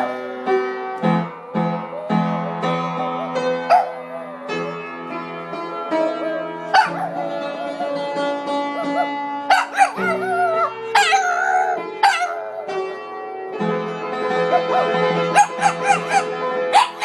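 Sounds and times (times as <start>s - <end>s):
dog howling: 0.0s - 4.9s, 6.0s - 12.8s
background music: 0.0s - 17.0s.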